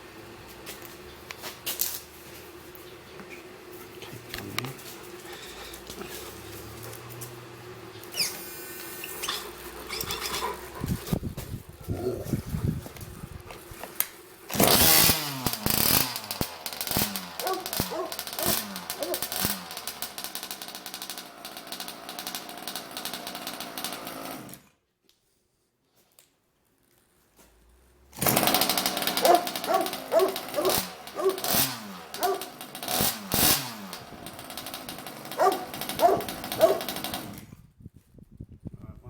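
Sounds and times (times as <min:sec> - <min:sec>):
small two-stroke engine revving: 0:03.6 - 0:13.8, 0:14.5 - 0:24.7, 0:28.0 - 0:37.6.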